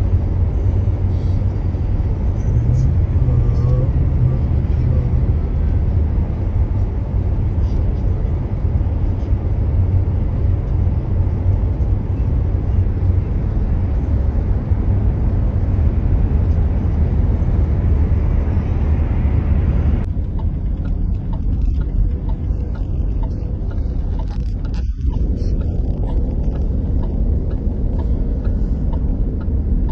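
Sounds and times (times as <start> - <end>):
car interior road rumble: 0.0 - 29.9.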